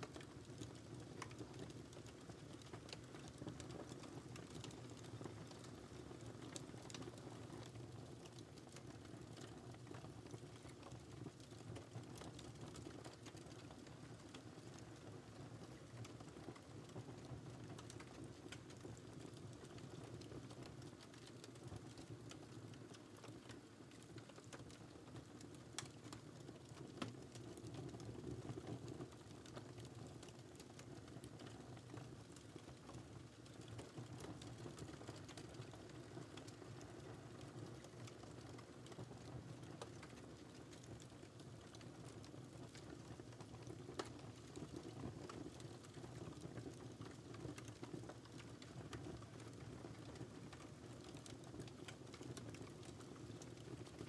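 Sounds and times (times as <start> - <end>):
fire crackling: 0.1 - 13.6, 39.7 - 54.0
fire pops and snaps: 39.7 - 54.0.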